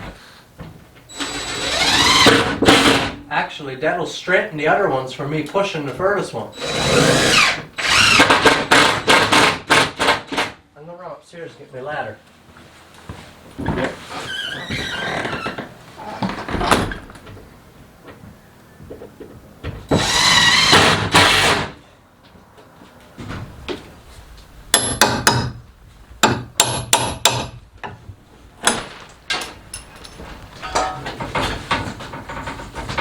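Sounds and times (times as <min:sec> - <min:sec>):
sharp knocks and clicks: 0:26.2 - 0:28.0
tools and wood clattering: 0:28.6 - 0:33.0.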